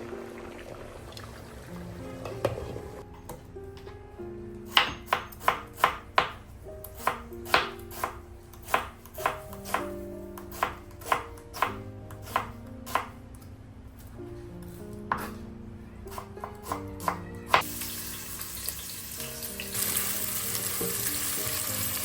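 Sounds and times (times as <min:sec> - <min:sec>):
soft background music: 0:00.0 - 0:22.0
knife chopping on cutting board: 0:04.7 - 0:13.2, 0:15.1 - 0:15.4.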